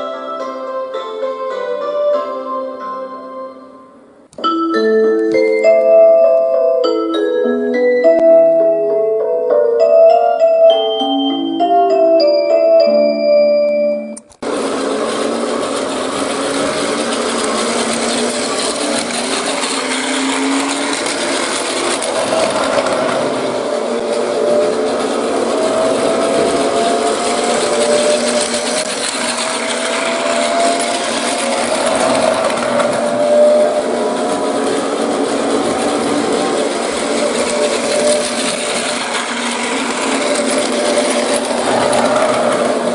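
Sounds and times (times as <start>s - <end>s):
toy train electric motor whirring: 14.3s - 42.9s.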